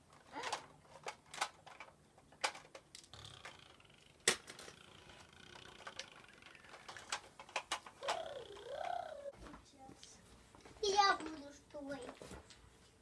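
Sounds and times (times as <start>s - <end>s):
toy blocks clacking together: 0.4s - 9.2s.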